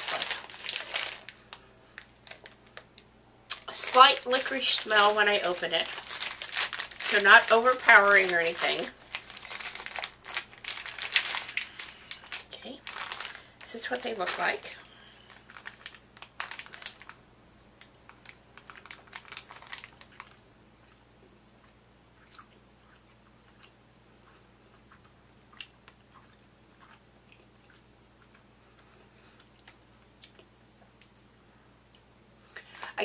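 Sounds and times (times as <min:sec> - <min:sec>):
person chewing: 0:20.0 - 0:32.7.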